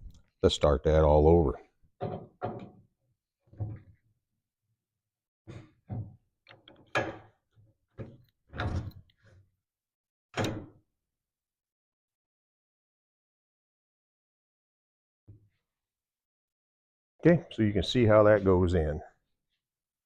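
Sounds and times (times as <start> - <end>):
metal clunks and knocks: 2.0 - 2.9.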